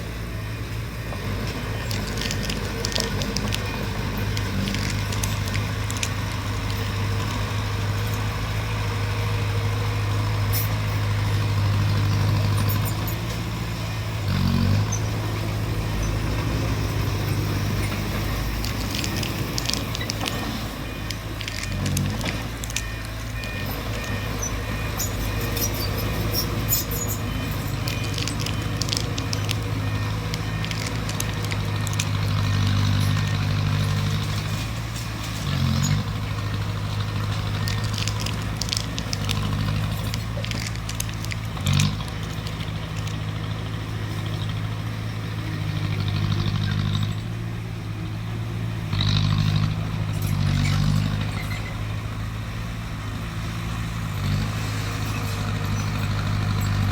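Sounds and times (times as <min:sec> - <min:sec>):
bulldozer diesel engine running: 0:00.0 - 0:56.9
sharp clicks and crackles: 0:01.4 - 0:08.8, 0:14.7 - 0:44.6.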